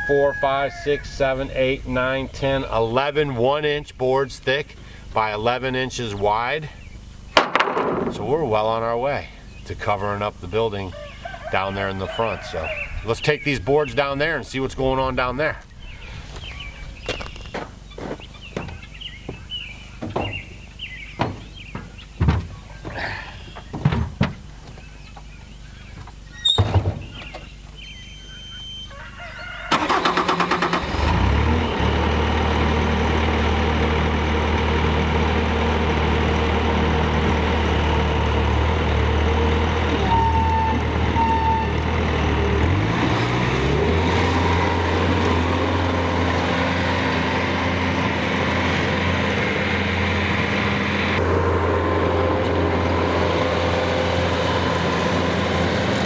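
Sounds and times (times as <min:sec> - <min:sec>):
thump: 0:07.4 - 0:08.2, 0:21.2 - 0:22.5, 0:26.5 - 0:27.2
engine cranking and running: 0:29.7 - 0:56.0.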